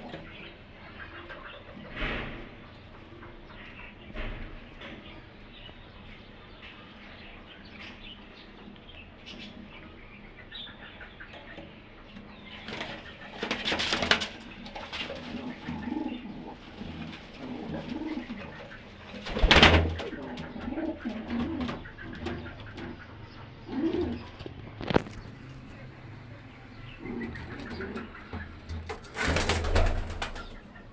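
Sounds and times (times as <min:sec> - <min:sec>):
pigeons cooing: 0:00.0 - 0:30.9
wings flapping: 0:12.6 - 0:15.9, 0:19.0 - 0:22.9, 0:27.0 - 0:30.8.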